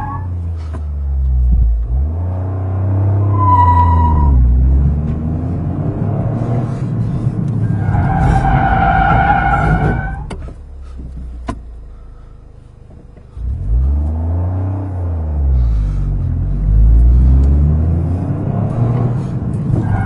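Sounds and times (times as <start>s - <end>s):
high-pitched wheel squeal: 0.0s - 0.4s, 3.2s - 4.6s, 7.6s - 10.3s, 19.7s - 20.0s
car engine running: 0.1s - 2.5s, 3.4s - 20.0s.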